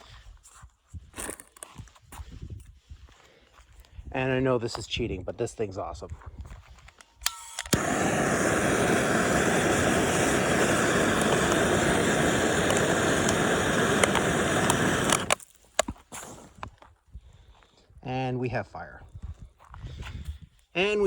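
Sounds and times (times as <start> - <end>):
torch igniter clicks: 7.2 - 16.3
gas torch flame hissing: 7.6 - 15.4.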